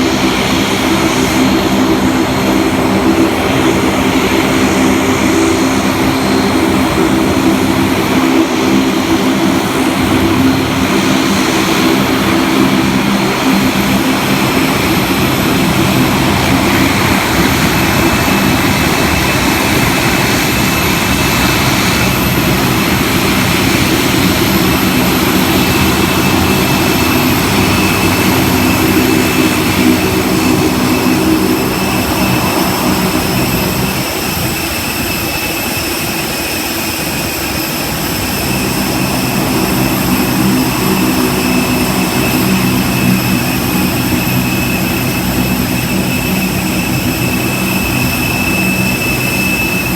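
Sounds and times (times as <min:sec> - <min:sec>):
engine droning hum: 0:00.0 - 0:49.9
high whine: 0:00.0 - 0:49.9.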